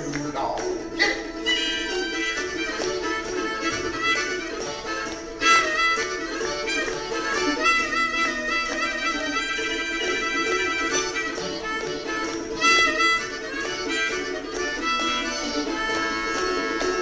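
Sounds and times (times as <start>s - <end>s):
bowed string folk tune: 0.0s - 17.0s.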